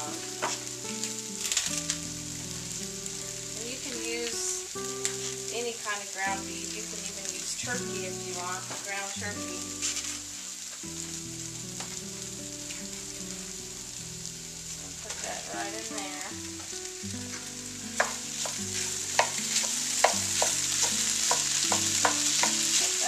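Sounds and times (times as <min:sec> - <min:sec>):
meat and potatoes sizzling in pan: 0:00.0 - 0:23.0
wooden spoon scraping a pan: 0:06.6 - 0:10.5, 0:17.3 - 0:23.0.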